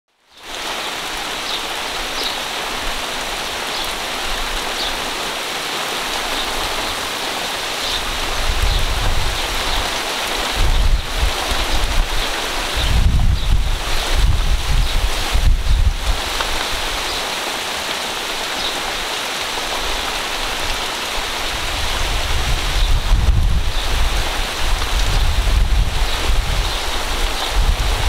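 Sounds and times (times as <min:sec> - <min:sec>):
rain on leaves and grass: 0:00.1 - 0:28.0
wind buffeting microphone: 0:07.8 - 0:17.2, 0:19.9 - 0:28.0.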